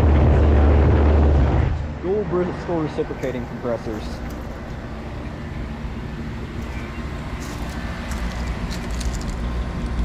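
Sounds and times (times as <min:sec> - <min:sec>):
compressor low hum: 0:00.0 - 0:10.0.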